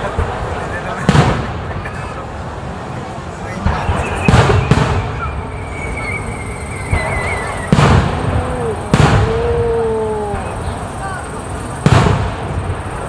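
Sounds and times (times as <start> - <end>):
fireworks bursting: 0.0 - 13.0
thin wavering whistle: 3.7 - 11.8.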